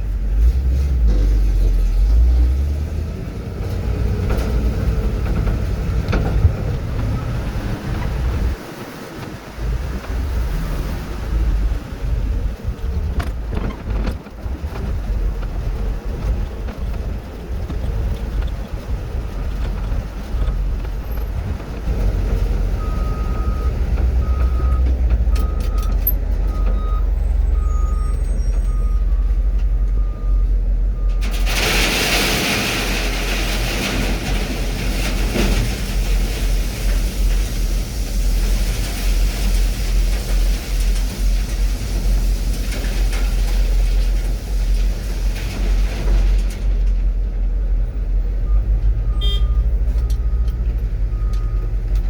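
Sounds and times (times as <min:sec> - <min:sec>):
reversing alarm beeps: 0:48.5 - 0:51.7.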